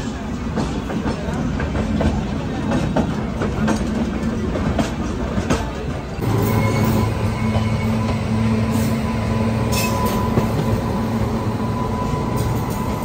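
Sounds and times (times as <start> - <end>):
train rumble inside coach: 0.0 - 13.0
electric locomotive hum: 4.0 - 13.0.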